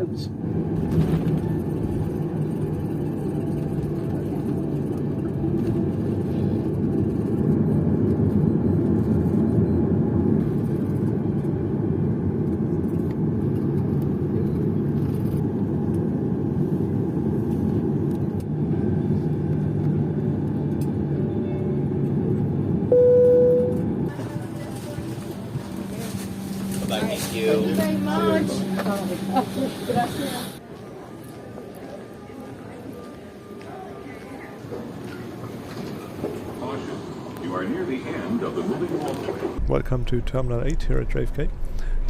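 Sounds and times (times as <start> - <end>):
airliner cabin rumble: 0.3 - 30.6, 34.5 - 42.0.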